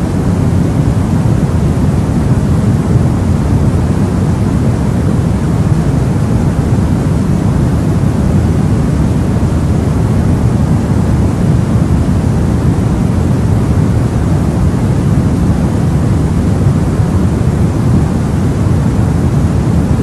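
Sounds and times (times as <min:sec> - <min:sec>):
steady deep rushing white noise: 0:00.0 - 0:20.0.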